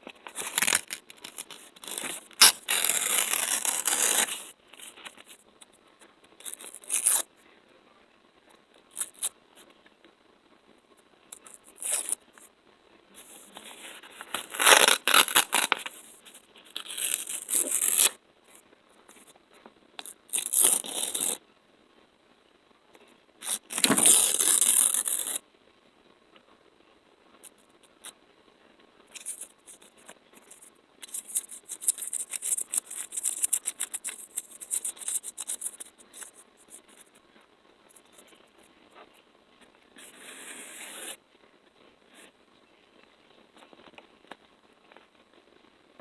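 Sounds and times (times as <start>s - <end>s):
sticky material peeling apart: 0.3s - 4.4s, 29.2s - 37.1s.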